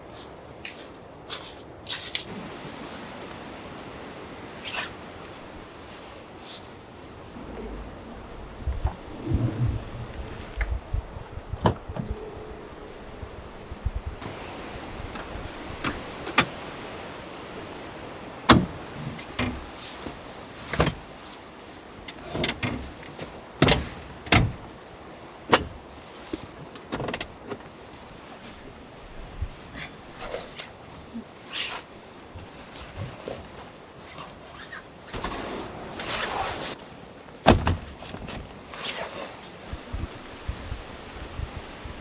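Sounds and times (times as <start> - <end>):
faint rustling: 7.1 - 16.0
dull low thumps: 7.3 - 14.2
knocks and clunks: 7.4 - 14.3.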